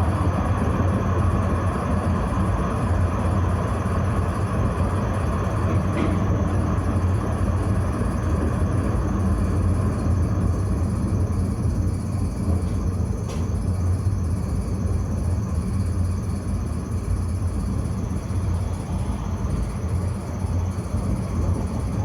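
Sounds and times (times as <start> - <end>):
tram rumbling on track: 0.0 - 15.8, 16.7 - 22.0.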